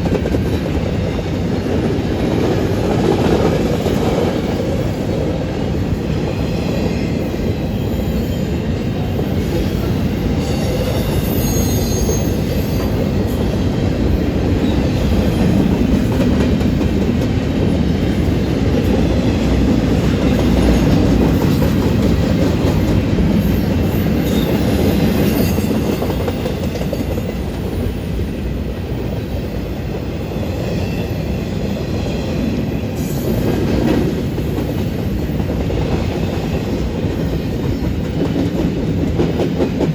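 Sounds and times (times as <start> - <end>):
train wheels clattering on track: 0.0 - 39.9
wheel squeal: 10.4 - 13.0.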